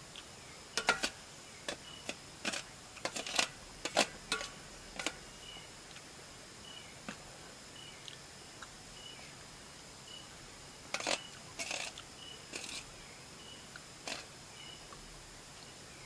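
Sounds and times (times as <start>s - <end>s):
sharp cooking handling noises: 0.8s - 5.2s, 10.9s - 12.9s, 14.0s - 14.3s.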